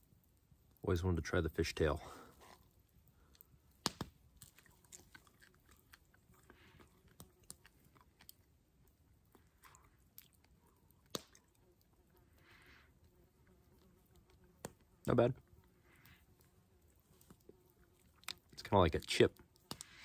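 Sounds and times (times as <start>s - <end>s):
crunching of crisp fried fish: 3.1s - 12.8s, 15.9s - 20.0s.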